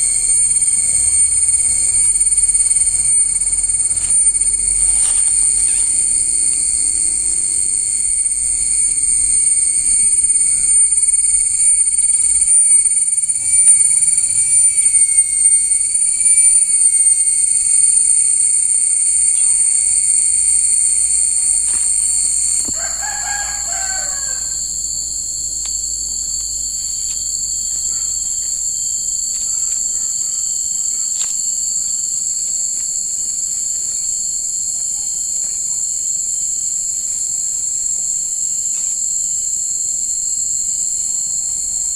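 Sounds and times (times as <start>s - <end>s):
high-pitched insect chorus: 0.0s - 41.9s
rooster crowing: 20.6s - 24.9s.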